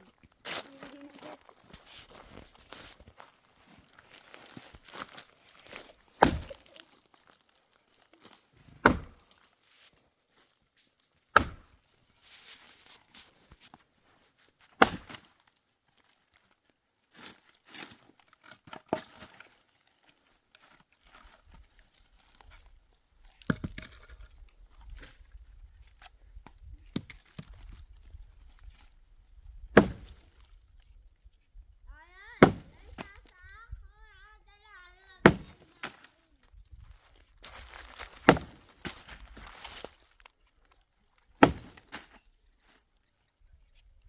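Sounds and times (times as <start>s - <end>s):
axe chopping firewood: 6.2s - 6.8s, 8.8s - 9.4s, 11.3s - 11.8s, 14.7s - 15.3s, 29.7s - 30.4s, 32.4s - 33.3s, 35.2s - 36.1s, 37.4s - 39.9s, 41.4s - 42.2s
wood crackling and rustling: 35.2s - 44.0s.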